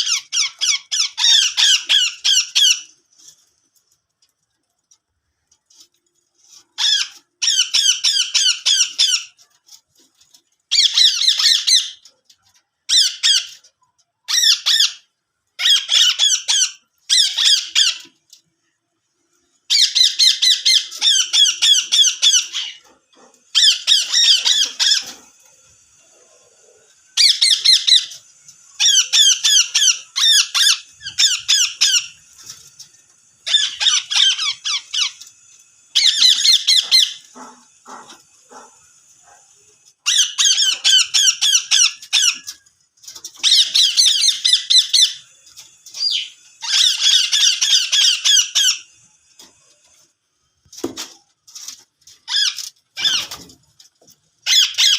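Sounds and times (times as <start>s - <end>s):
parakeet screeching: 0.0s - 2.9s, 6.8s - 9.4s, 10.7s - 12.0s, 14.3s - 18.1s, 19.7s - 25.3s, 27.2s - 28.2s, 28.8s - 32.2s, 33.4s - 35.3s, 35.9s - 38.7s, 40.0s - 42.6s, 43.4s - 45.3s, 46.0s - 49.0s, 52.3s - 53.5s, 54.4s - 54.9s.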